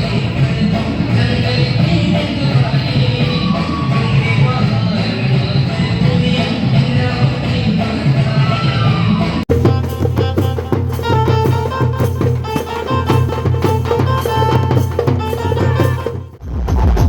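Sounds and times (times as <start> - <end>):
music with drums and percussion: 0.0 - 17.0.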